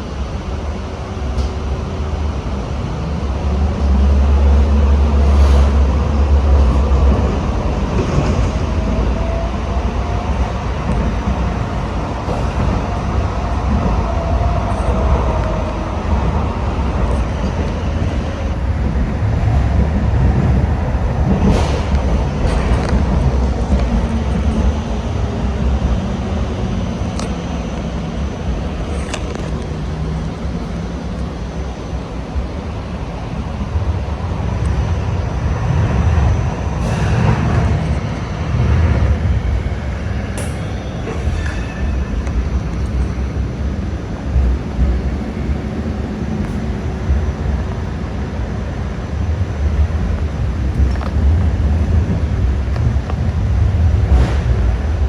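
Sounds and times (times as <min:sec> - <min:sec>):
light rail car rumbling on track: 0:00.0 - 0:55.0.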